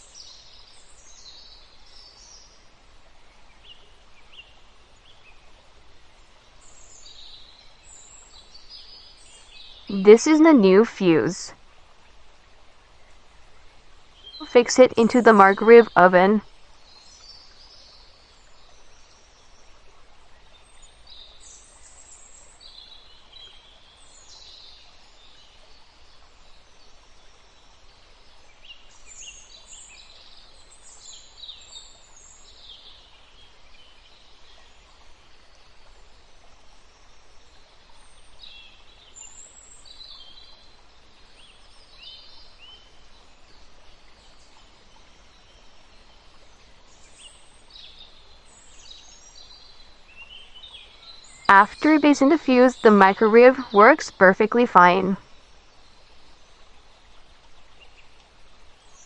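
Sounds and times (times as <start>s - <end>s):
faint birdsong chirps: 12.9s - 56.7s.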